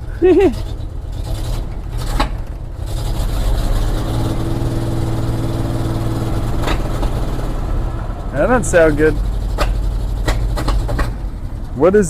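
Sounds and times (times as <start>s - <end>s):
engine running with exhaust leak: 0.0s - 12.0s
sharp crack: 9.4s - 11.3s.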